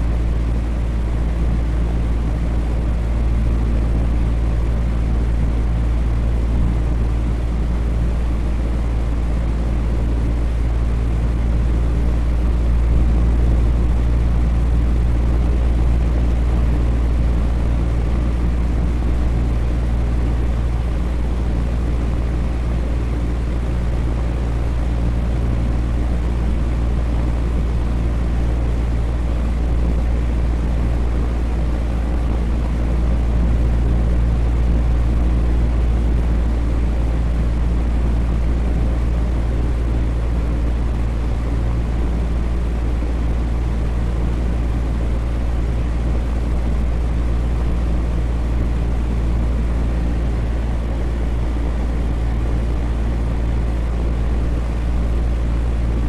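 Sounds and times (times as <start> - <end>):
electric fan running: 0.0 - 56.0.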